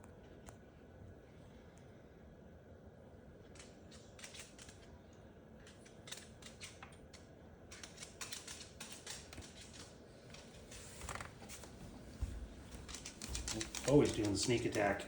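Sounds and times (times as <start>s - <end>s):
bird tapping plastic toy: 13.0s - 15.0s.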